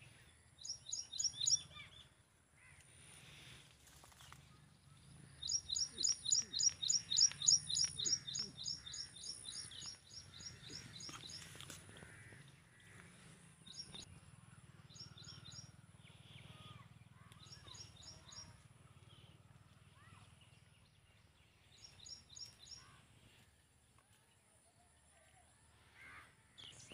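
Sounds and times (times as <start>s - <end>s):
songbird sharp chirps: 0.6s - 2.1s, 5.3s - 11.5s.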